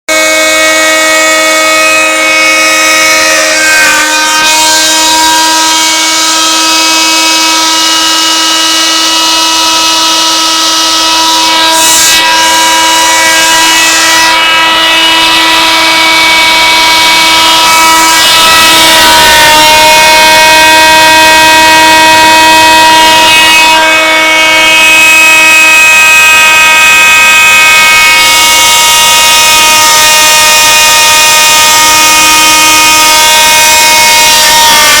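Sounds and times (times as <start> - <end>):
stepper motors whining: 0.3 - 26.1.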